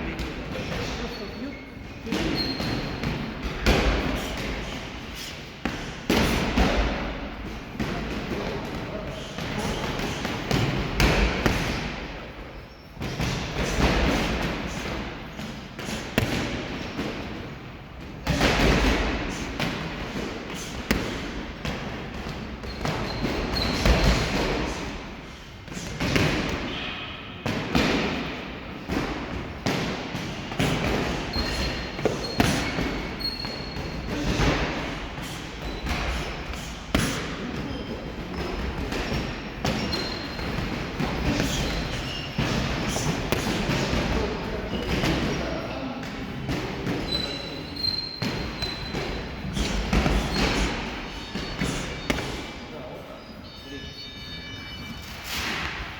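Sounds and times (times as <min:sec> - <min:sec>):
short high squeaks: 0:31.3 - 0:34.1, 0:39.5 - 0:40.4, 0:47.0 - 0:55.5.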